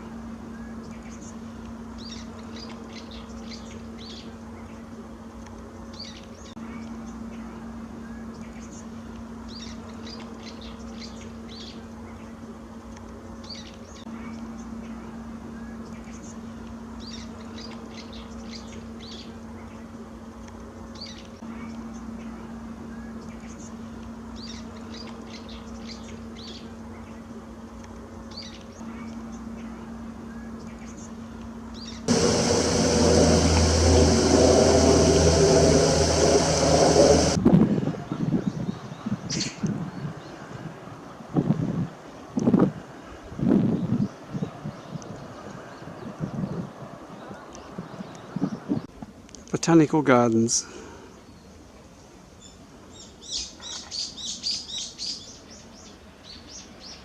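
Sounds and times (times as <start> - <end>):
steady low hum: 0.0 - 38.0
songbirds chirping: 0.4 - 33.8, 43.7 - 49.0
low hum: 28.8 - 37.7.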